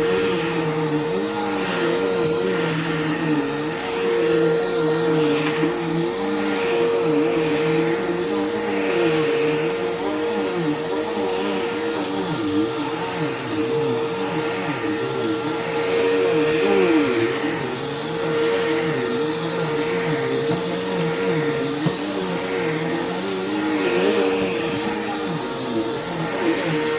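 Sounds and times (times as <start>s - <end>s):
vacuum cleaner running on carpet: 0.0s - 26.9s.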